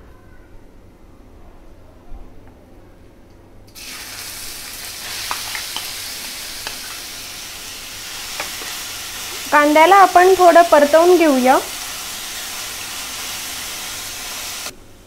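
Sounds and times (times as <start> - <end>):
onion sizzling in hot oil: 3.7 - 14.8.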